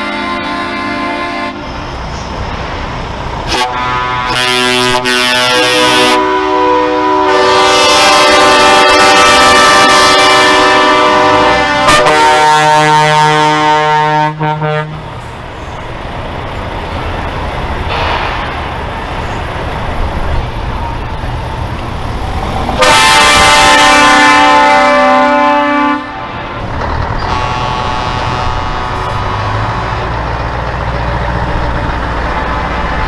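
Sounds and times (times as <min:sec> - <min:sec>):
truck air horns blasting: 0:00.0 - 0:01.9, 0:03.4 - 0:15.2, 0:22.5 - 0:30.5
truck engines rumbling: 0:00.0 - 0:33.0.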